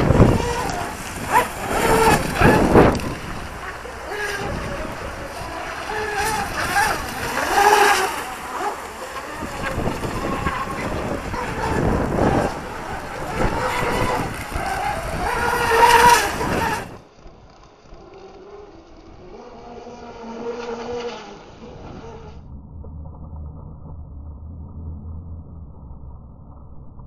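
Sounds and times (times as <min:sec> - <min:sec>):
wind buffeting microphone: 0:00.0 - 0:17.1
small electric motor whining: 0:00.0 - 0:22.4.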